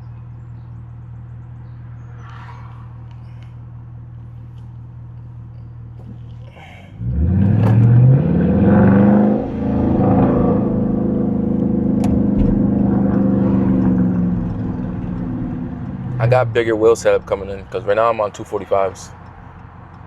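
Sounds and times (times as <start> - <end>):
car exhaust accelerating hard: 7.0 - 20.0.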